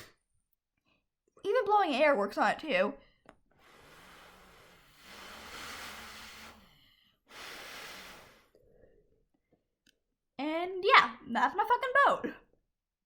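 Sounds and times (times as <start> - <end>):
breath blowing puffs: 3.5 - 9.0.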